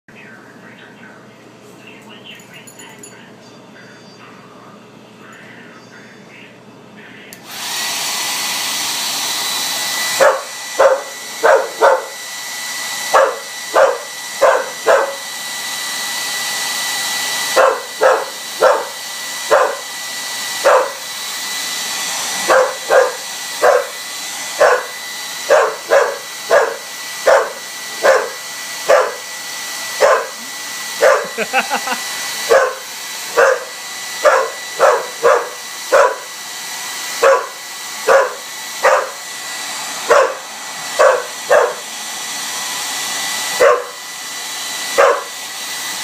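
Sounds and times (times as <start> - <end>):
blow dryer whining: 6.7 - 46.0
dog barking: 10.2 - 12.2, 13.1 - 15.3, 17.5 - 19.9, 20.6 - 21.1, 22.4 - 24.0, 24.6 - 29.3, 30.0 - 30.4, 31.0 - 31.5, 32.5 - 36.3, 37.2 - 39.2, 40.0 - 41.9, 43.6 - 44.0, 44.9 - 45.4.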